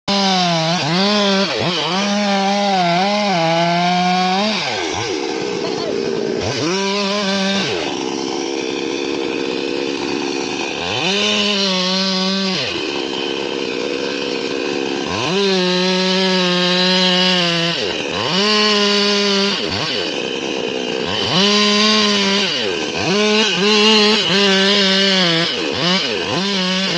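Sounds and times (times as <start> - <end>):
chainsaw engine revving: 0.1 - 26.9.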